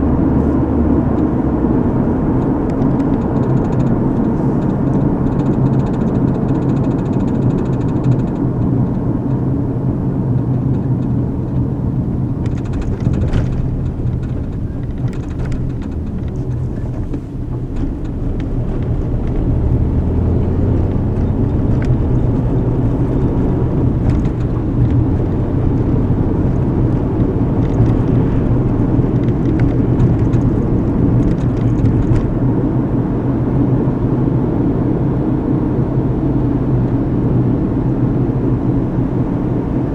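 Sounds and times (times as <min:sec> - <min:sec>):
car engine and tyre rumble: 0:00.0 - 0:39.9
faint clicks and rattles: 0:02.3 - 0:32.5.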